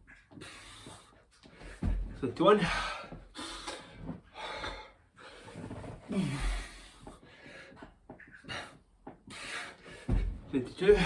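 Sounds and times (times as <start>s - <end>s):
man breathing hard: 0.1s - 2.0s, 2.6s - 11.0s
body thudding on floor: 1.5s - 2.2s, 9.9s - 11.0s.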